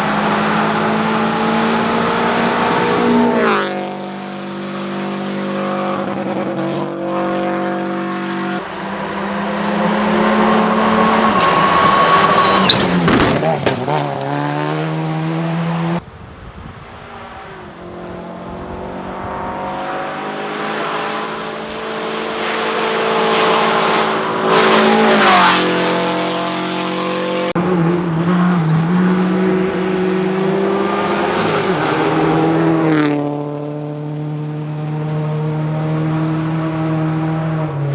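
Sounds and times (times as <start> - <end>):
rally car engines: 0.0 - 37.9
car passing close: 0.1 - 4.1, 8.6 - 27.5, 29.2 - 34.4.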